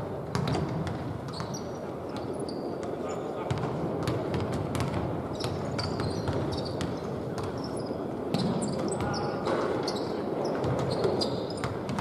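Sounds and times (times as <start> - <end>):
basketball bouncing: 0.3 - 1.6, 3.5 - 7.6
sneakers squeaking on floor: 1.3 - 2.7, 5.3 - 12.0.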